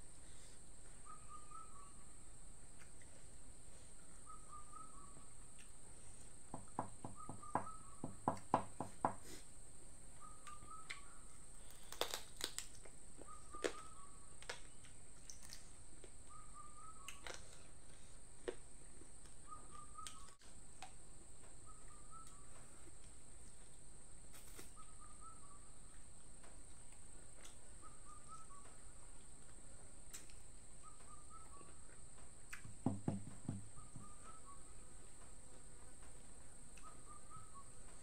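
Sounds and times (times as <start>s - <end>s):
bird calling: 1.0s - 2.2s, 4.1s - 5.3s, 27.8s - 28.9s, 32.8s - 34.9s, 36.8s - 37.9s.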